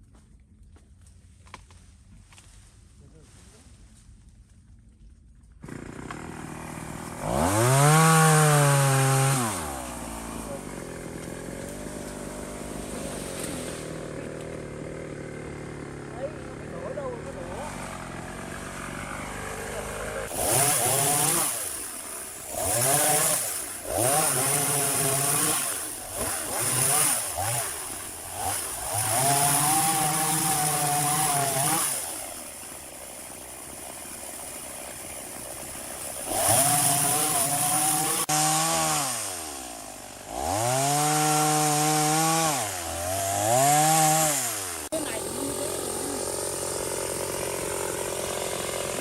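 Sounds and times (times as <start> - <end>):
chainsaw engine revving: 5.6 - 49.0.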